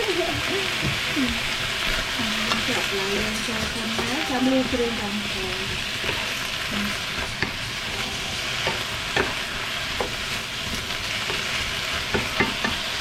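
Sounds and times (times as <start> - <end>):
food sizzling in a hot pan: 0.0 - 13.0
spatula clacking against pan: 7.1 - 13.0.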